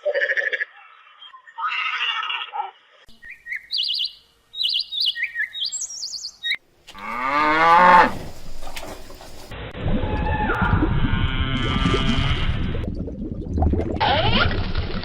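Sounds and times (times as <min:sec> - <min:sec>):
bird chirping: 0:03.1 - 0:06.6.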